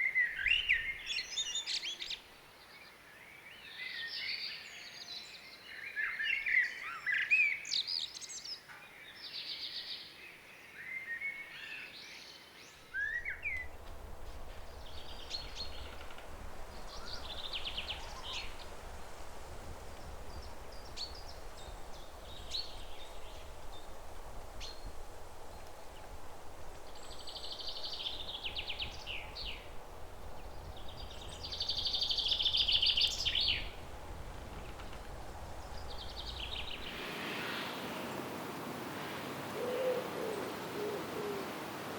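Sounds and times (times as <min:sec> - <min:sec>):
songbirds chirping and warbling: 0:00.0 - 0:41.9
low rumble and hiss: 0:12.8 - 0:41.9
buzzy bird trills: 0:13.0 - 0:37.7.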